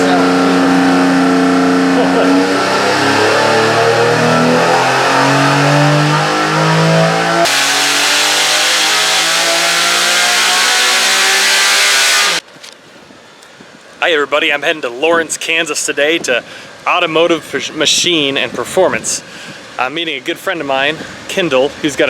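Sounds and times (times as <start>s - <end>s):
engine revving on a dyno: 0.0s - 12.4s.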